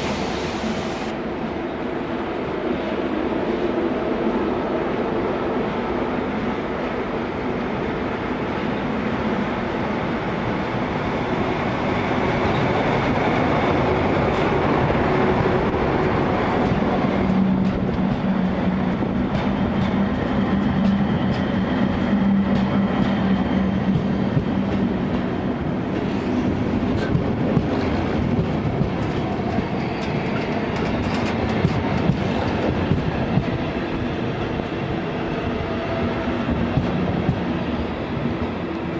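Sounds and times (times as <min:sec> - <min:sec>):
train low hum: 0:00.0 - 0:38.9
train wheels clicking over rail joints: 0:13.0 - 0:34.7.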